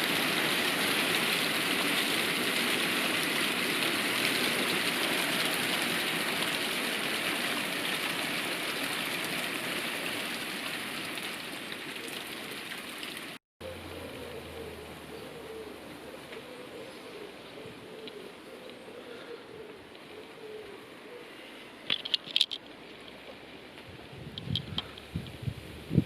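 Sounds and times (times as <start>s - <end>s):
steady rain hissing: 0.0s - 17.4s, 22.7s - 26.0s.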